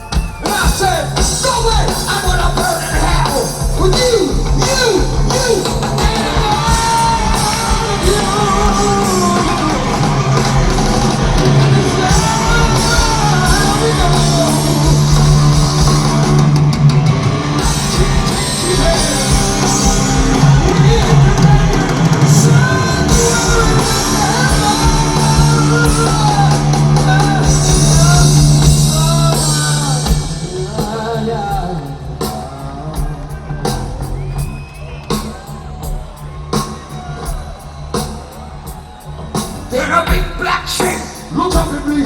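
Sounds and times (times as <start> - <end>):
drum and cymbal hits: 0.0 - 42.0
heavy metal band playing live: 0.0 - 42.0.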